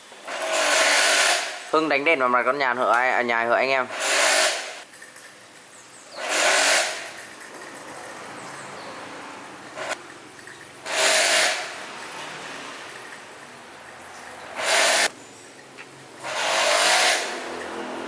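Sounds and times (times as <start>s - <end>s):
short hissing bursts: 14.6s - 15.1s.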